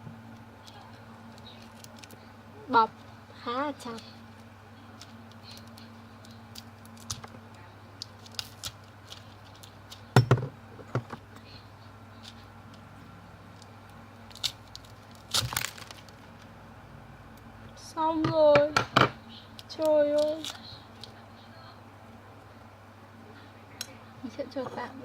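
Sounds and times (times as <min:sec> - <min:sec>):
plastic packet tearing and crinkling: 0:08.0 - 0:09.8, 0:14.3 - 0:16.5
sharp plastic rustles: 0:14.3 - 0:16.5.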